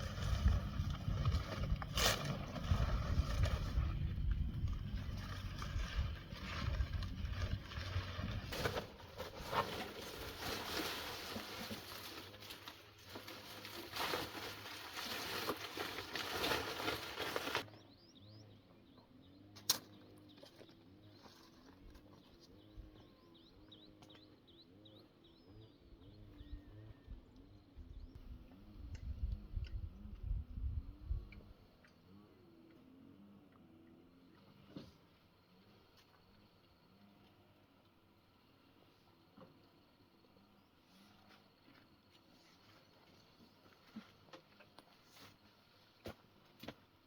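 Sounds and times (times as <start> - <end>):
birds chirping: 17.6 - 32.8
sharp click: 19.6 - 19.9.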